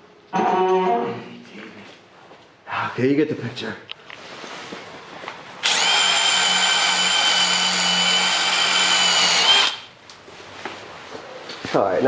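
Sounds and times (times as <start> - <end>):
power tool motor whine: 5.6 - 9.9.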